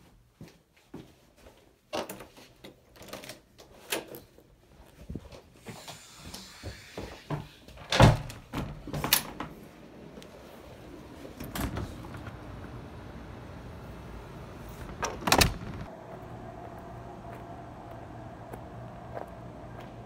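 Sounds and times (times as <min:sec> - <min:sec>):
faint outdoor hum: 0:08.8 - 0:20.0.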